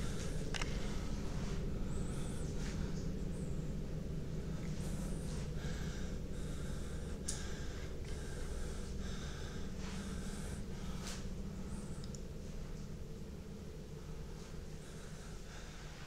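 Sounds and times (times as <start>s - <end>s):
man breathing heavily: 0.0s - 12.1s, 13.9s - 16.0s
steady low hum: 0.0s - 16.0s.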